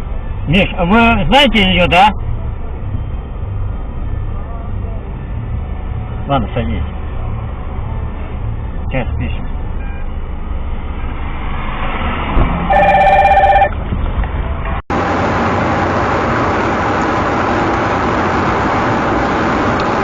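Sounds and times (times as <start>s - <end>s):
road and traffic noise: 0.0s - 20.0s
vehicle rumble: 0.0s - 20.0s
warbling electronic ring: 12.7s - 13.7s.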